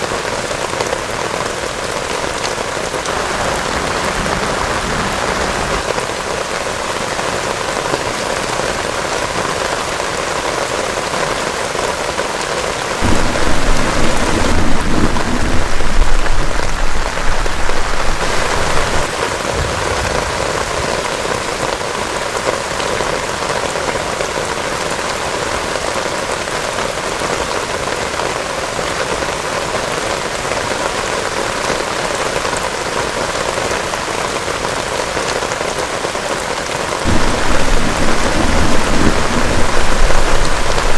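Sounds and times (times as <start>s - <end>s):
heavy rain: 0.0s - 40.9s
thunder rumble: 13.0s - 21.0s, 37.1s - 40.9s.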